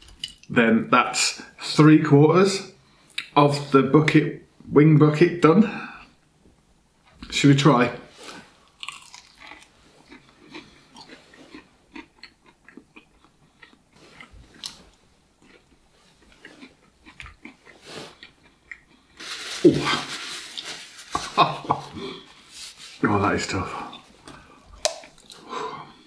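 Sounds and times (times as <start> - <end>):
chewing crispy chicken: 8.6 - 14.8, 15.4 - 20.0
breathy sounds: 21.9 - 22.6, 25.3 - 26.0
wet mouth sounds: 24.7 - 25.4.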